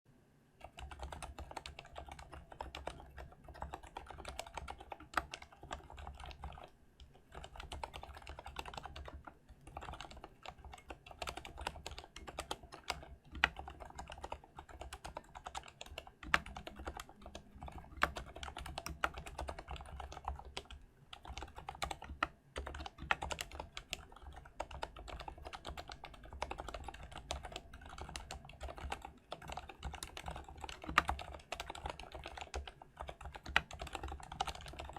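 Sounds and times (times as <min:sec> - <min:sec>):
mechanical keyboard typing: 0:00.6 - 0:34.9.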